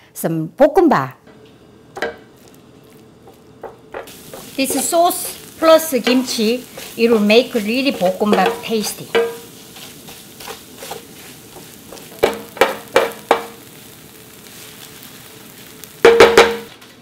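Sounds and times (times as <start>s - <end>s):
rice sizzling in a skillet: 1.4s - 17.0s
wooden spoon stirring rice: 2.0s - 16.6s
spoon knocking against pan: 8.0s - 9.4s, 12.2s - 13.6s, 16.0s - 16.7s.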